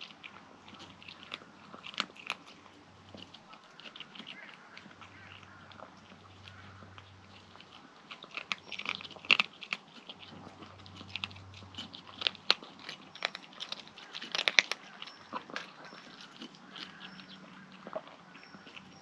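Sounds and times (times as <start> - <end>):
kitten crunching food: 0.0 - 19.0.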